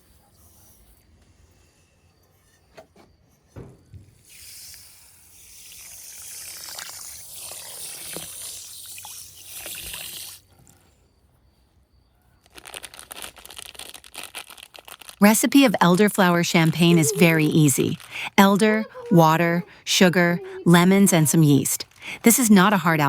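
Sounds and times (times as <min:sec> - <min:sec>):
liquid pouring into container: 0:05.5 - 0:10.5.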